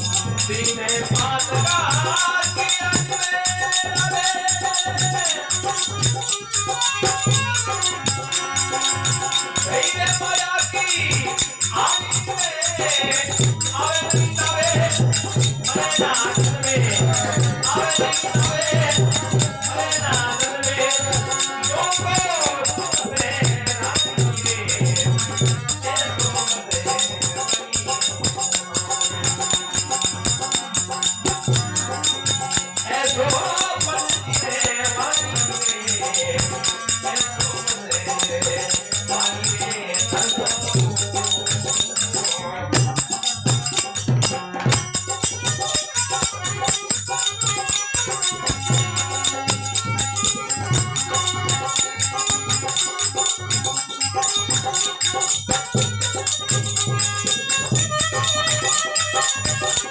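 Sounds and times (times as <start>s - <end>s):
jingling hand percussion: 0.0s - 59.9s
sustained melodic instruments: 24.5s - 59.9s.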